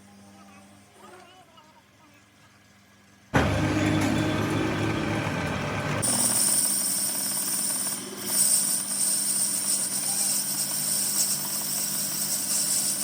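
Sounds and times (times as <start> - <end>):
workshop machinery hum: 0.0 - 13.0
machine hiss and whine: 3.4 - 13.0.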